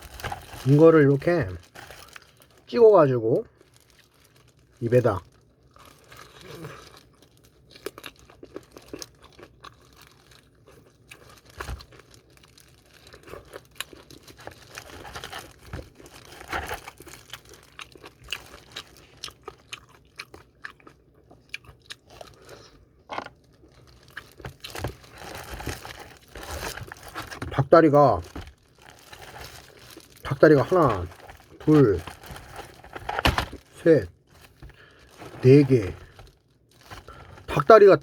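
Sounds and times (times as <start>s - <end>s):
chewing crunchy fried chicken: 3.4s - 38.0s.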